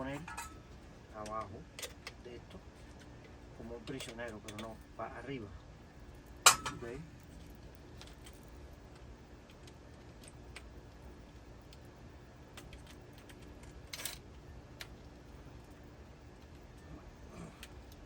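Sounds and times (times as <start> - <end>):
screwdriver clicking on metal parts: 3.8 - 4.8.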